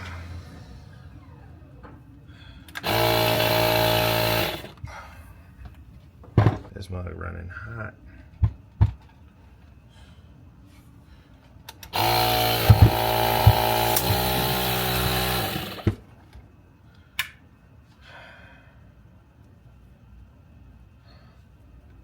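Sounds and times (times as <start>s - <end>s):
air compressor running: 2.7s - 4.8s, 11.9s - 16.1s.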